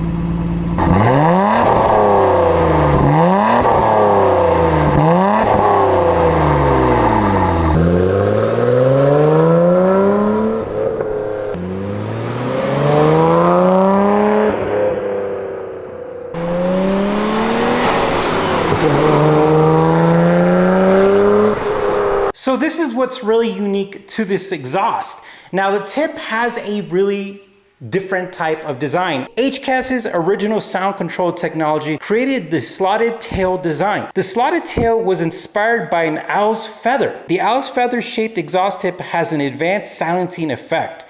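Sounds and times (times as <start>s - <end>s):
car engine revving: 0.0s - 22.4s.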